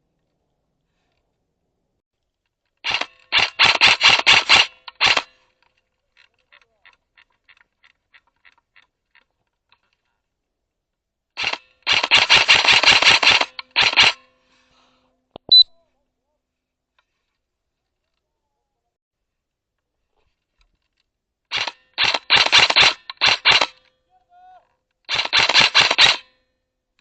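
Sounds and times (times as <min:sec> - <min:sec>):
airsoft gun firing bursts: 0:02.8 - 0:05.4, 0:11.4 - 0:14.2, 0:21.5 - 0:23.8, 0:25.1 - 0:26.3.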